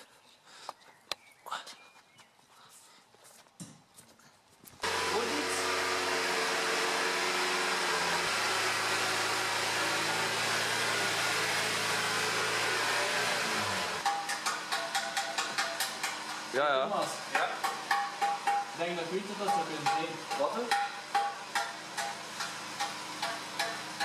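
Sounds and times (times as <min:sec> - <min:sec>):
car engine at raised revs: 0:04.8 - 0:14.7.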